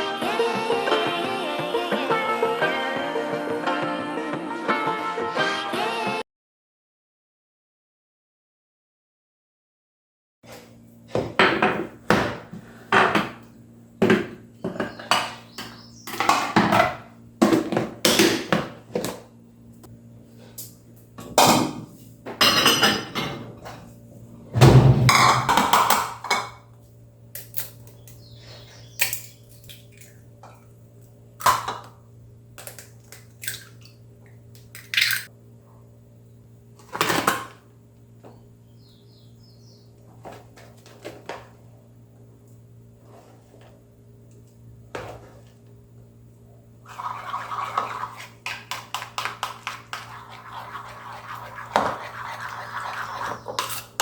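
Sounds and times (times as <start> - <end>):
steady low hum: 16.9 - 54.0
dishes and cutlery clattering: 22.4 - 23.5.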